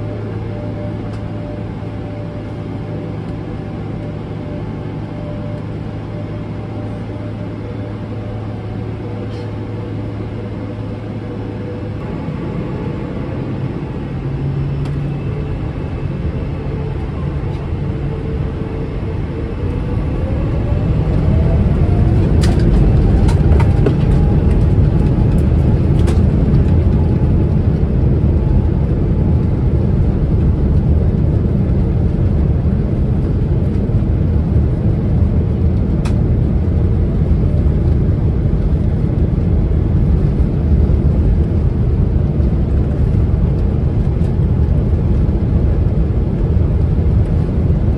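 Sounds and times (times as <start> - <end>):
rising engine whine: 0.0 - 47.9
jet engines spooling up: 3.1 - 30.5.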